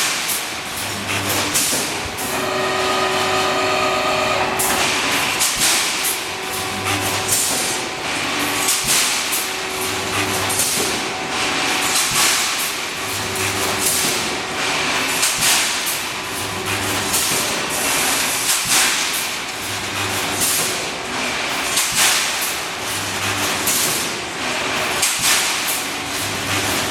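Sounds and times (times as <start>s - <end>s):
welding machine low hum: 0.0s - 18.8s.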